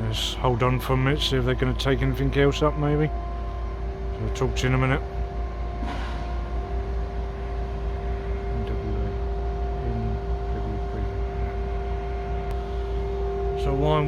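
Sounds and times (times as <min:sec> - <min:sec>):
low continuous rumble: 0:00.0 - 0:14.0
machinery hum: 0:00.0 - 0:14.0
faint distant voices: 0:08.3 - 0:12.9.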